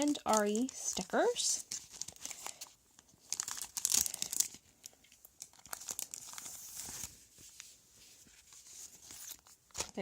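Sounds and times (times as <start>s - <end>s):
packaging crinkling: 0.0s - 7.7s, 8.3s - 10.0s.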